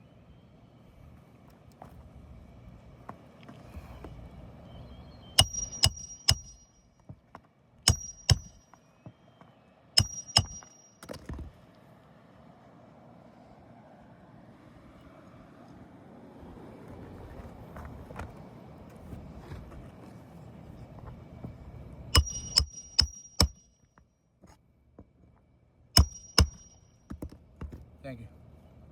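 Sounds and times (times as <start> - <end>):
hammer blows on metal: 5.4 - 6.8, 7.9 - 8.8, 10.0 - 11.1, 22.2 - 23.8, 26.0 - 26.8.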